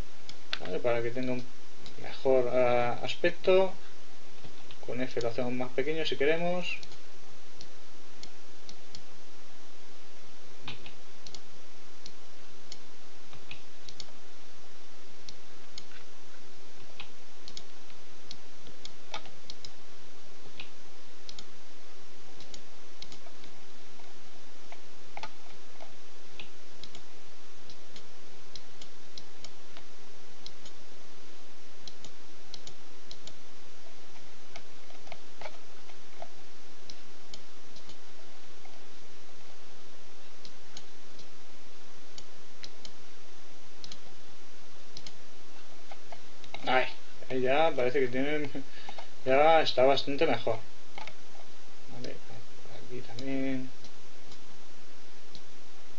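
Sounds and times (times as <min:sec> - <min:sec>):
microphone hiss and hum: 0:00.0 - 0:55.9
computer mouse and keyboard clicks: 0:19.1 - 0:19.8.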